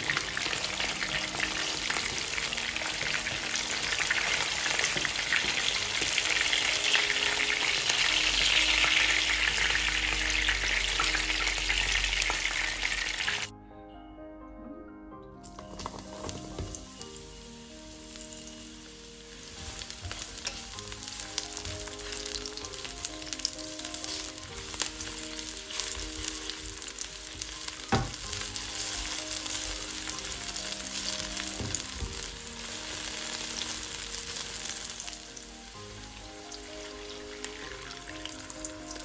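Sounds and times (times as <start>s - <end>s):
onion and garlic sizzling in oil: 0.0s - 13.5s, 15.5s - 39.0s
soft background music: 0.0s - 39.0s
wooden spatula stirring in wok: 19.3s - 32.4s.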